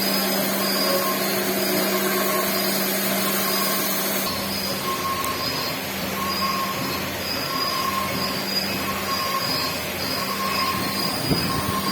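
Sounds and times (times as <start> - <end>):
high machine whine: 0.0 - 11.9
machine running: 0.0 - 11.9.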